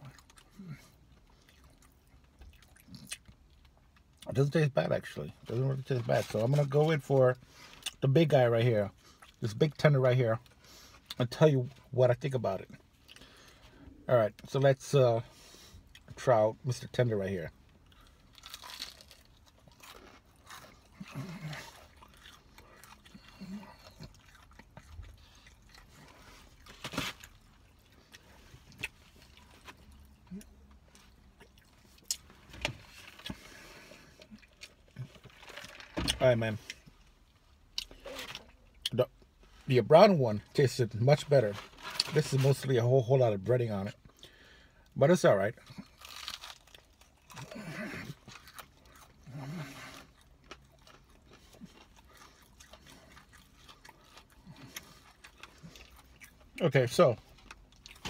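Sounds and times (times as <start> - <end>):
person chewing food: 0.0 - 4.2, 17.6 - 35.9, 45.7 - 56.6, 57.2 - 58.0.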